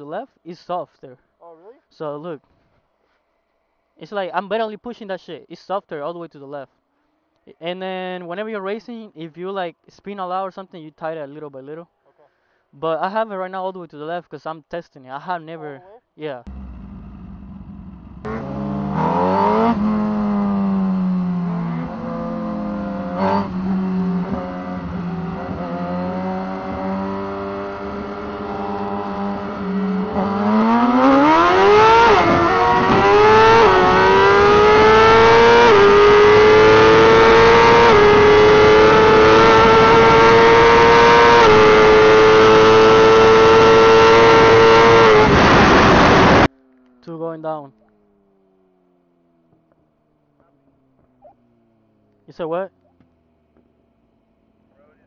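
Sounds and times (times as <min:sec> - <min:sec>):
motorcycle engine revving: 0:16.5 - 0:46.6.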